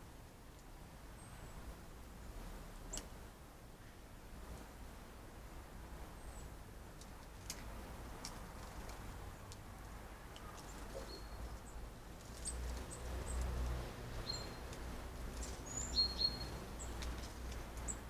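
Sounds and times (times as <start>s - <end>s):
birds chirping: 10.4s - 13.5s, 14.2s - 14.7s, 15.3s - 18.0s
whistled bird notes: 15.7s - 16.5s.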